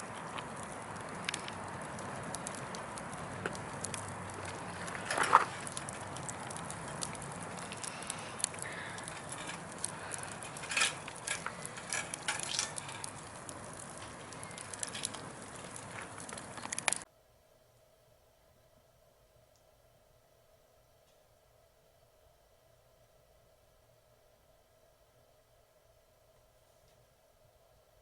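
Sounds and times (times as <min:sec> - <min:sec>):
campfire crackling and popping: 0:00.0 - 0:17.1.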